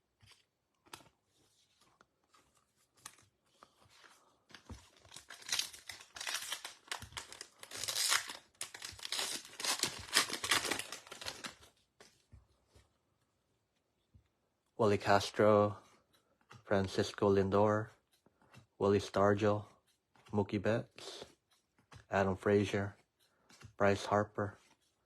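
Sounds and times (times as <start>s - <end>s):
foil wrapper tearing and crinkling: 5.0s - 11.6s.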